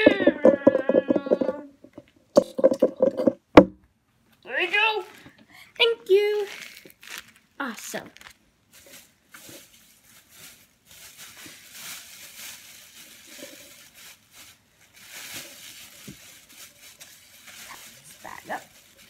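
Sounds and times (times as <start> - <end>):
shopping bag rustling: 6.3 - 19.0.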